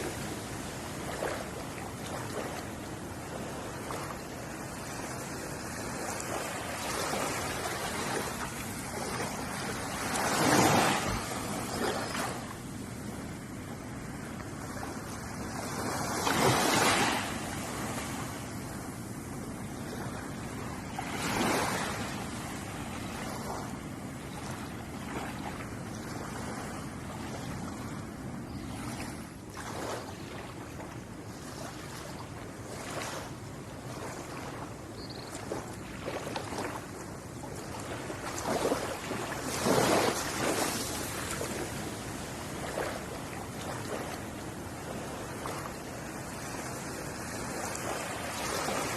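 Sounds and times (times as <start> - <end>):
surf hiss: 0.0 - 24.4
ocean waves breaking: 0.0 - 48.9.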